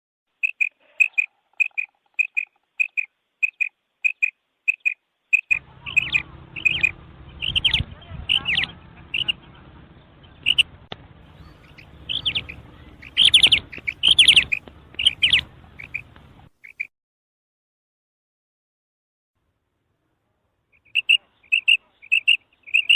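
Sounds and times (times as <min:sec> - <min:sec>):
background hiss: 0:00.3 - 0:05.6
quail calling: 0:00.4 - 0:09.4, 0:10.4 - 0:10.7, 0:11.3 - 0:16.9, 0:20.8 - 0:22.9.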